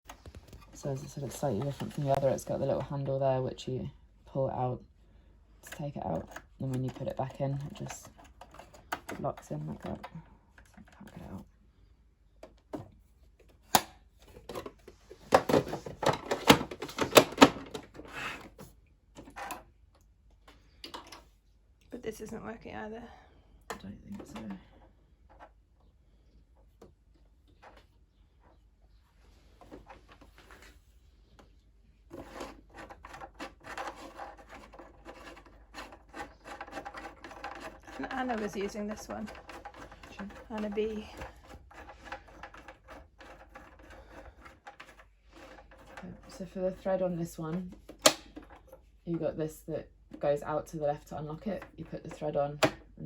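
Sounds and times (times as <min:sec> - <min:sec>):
sewing machine clicks and rubbing: 0:32.1 - 0:46.4.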